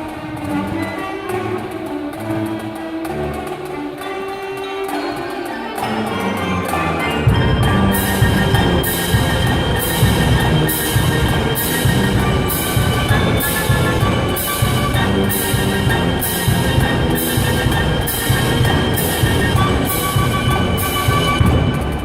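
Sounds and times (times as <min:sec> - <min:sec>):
wind ensemble playing: 0:00.0 - 0:22.0
loud low drum: 0:07.3 - 0:22.0.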